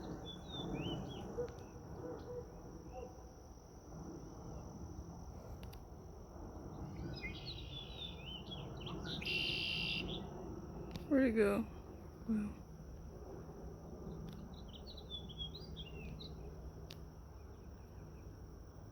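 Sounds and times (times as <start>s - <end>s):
steady low rumble: 0.0s - 18.9s
bird chirping: 7.0s - 10.2s.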